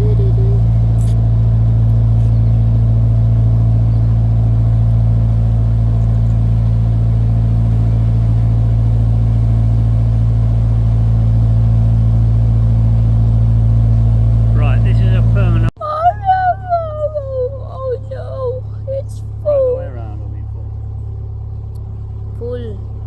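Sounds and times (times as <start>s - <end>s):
diesel engine humming: 0.0s - 23.0s.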